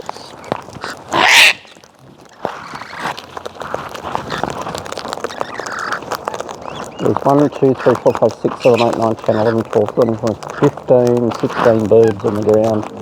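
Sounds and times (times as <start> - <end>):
cockatoo screeching: 0.0 - 3.2, 5.2 - 12.9
flock clicking and scratching: 2.8 - 13.0.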